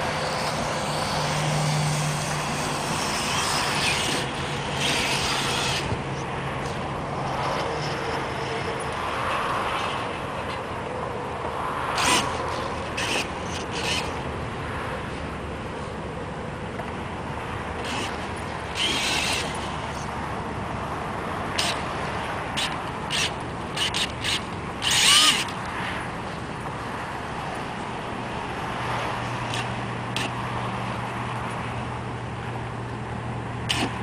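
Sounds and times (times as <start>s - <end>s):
small electric motor whirring: 0.0s - 9.2s, 11.9s - 14.2s, 17.8s - 20.2s, 21.6s - 21.9s, 22.5s - 25.7s, 33.7s - 34.0s.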